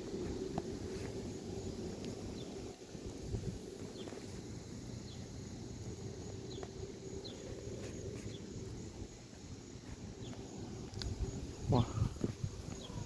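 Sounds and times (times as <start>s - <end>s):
wind rumbling on microphone: 0.0s - 13.0s
faint bird chirps: 11.6s - 13.0s.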